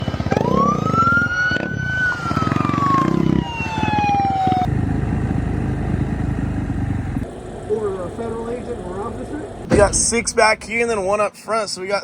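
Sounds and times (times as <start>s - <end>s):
siren wailing: 0.0s - 4.8s
engine running: 3.8s - 11.3s.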